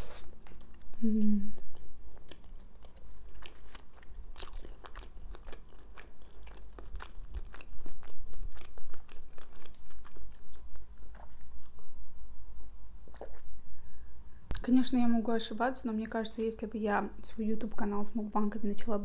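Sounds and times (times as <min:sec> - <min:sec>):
crunchy chewing mouth sounds: 0:00.0 - 0:11.9, 0:13.0 - 0:13.5.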